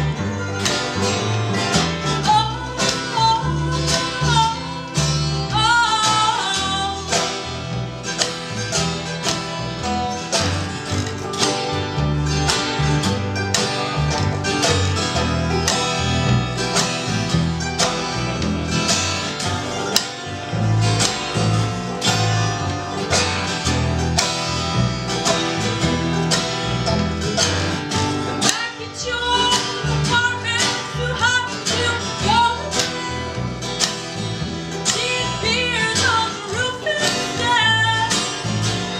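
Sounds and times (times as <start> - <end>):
folk band playing acoustic strings: 0.0 - 38.9
person singing: 2.0 - 7.3, 28.4 - 33.3, 34.9 - 38.3.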